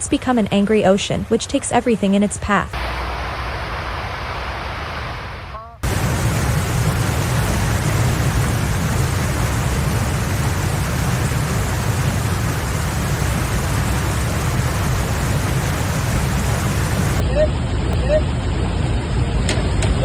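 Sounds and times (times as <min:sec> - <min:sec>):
rushing water: 0:02.8 - 0:17.2
deep rumble: 0:05.8 - 0:20.0.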